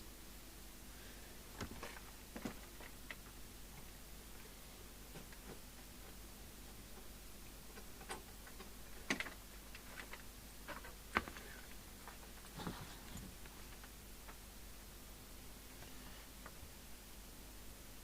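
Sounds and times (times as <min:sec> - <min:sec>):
faint mains hum: 0:00.0 - 0:18.0.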